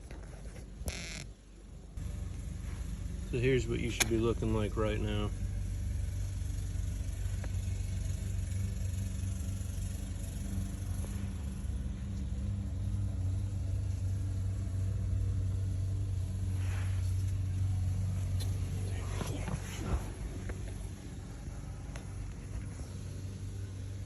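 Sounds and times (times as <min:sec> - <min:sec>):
steady low hum: 0:00.0 - 0:24.0
faint scrape: 0:16.5 - 0:17.4.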